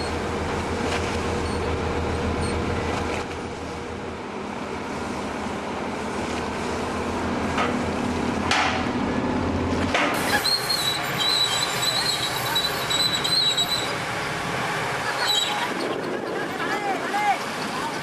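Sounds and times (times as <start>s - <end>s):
low engine hum: 0.0s - 18.0s
short high-pitched squeals: 10.2s - 14.0s, 15.2s - 15.8s.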